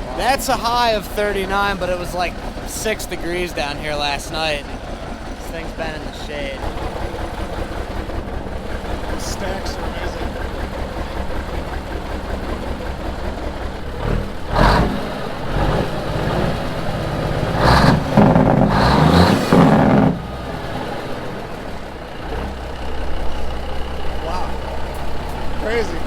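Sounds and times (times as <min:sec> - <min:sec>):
diesel truck engine idling and revving: 0:00.0 - 0:26.0.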